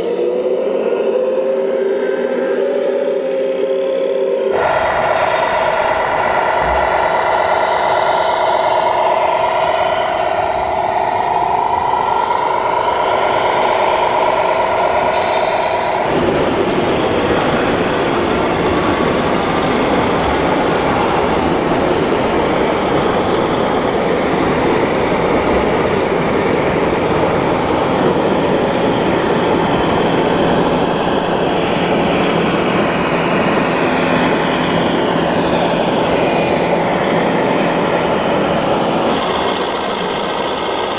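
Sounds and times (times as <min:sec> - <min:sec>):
electric motor and pump whine: 0:04.5 - 0:40.9.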